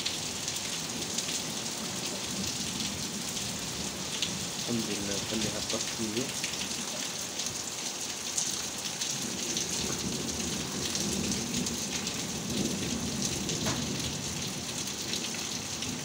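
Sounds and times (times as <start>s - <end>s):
heavy rain pattering: 0.0s - 16.0s
low thunder rumble: 9.9s - 14.6s.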